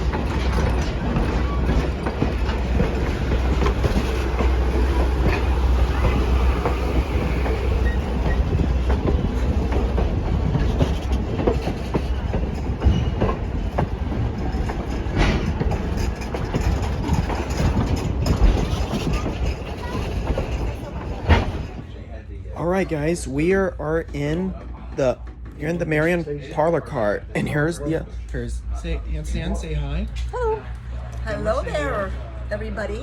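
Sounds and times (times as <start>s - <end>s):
wheels clicking and knocking: 0.0s - 22.0s, 22.7s - 27.0s
railroad car rumbling: 0.0s - 33.0s.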